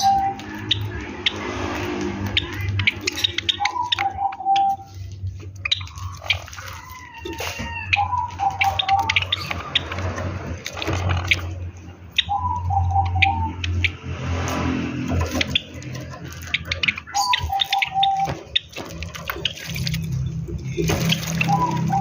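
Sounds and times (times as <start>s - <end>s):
birds chirping: 0.0s - 22.0s
water splashing and dripping: 4.9s - 11.4s, 13.6s - 22.0s.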